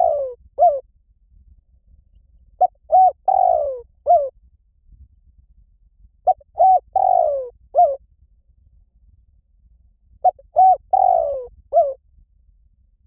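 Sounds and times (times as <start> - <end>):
dove cooing: 0.0 - 0.8, 2.6 - 4.3, 6.3 - 8.0, 10.2 - 12.0.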